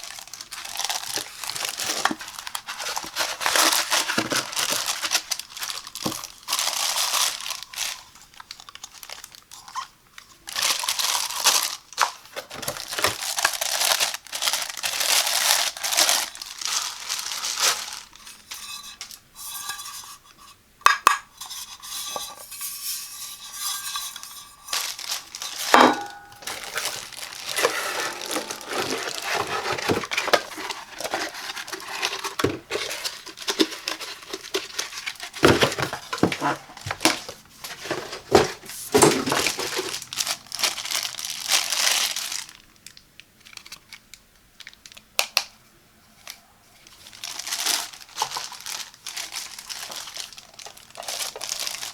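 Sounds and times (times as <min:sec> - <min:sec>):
plastic and paper crinkling: 0:00.0 - 0:19.2, 0:23.2 - 0:45.5, 0:46.2 - 0:51.9
hard parts knocking and clinking: 0:25.7 - 0:34.7, 0:35.4 - 0:40.0.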